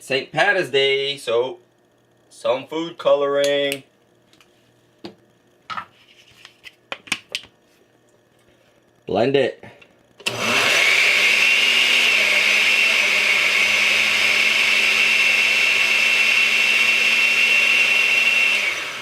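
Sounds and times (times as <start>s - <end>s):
blender switch click: 10.2s - 10.4s
blender motor whining: 10.2s - 19.0s.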